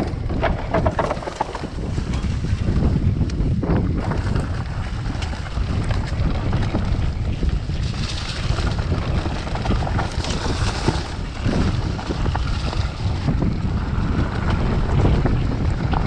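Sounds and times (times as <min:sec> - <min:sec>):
bike knocks over bumps: 0:00.0 - 0:16.0
mountain bike rattling on rough trail: 0:00.0 - 0:16.0
wind buffeting microphone: 0:00.0 - 0:16.0.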